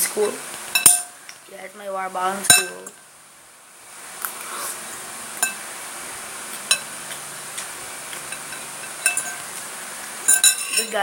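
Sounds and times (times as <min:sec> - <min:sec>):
spoon clinking against a plate: 0:00.8 - 0:01.1, 0:05.4 - 0:05.6, 0:08.2 - 0:09.4, 0:10.3 - 0:11.0.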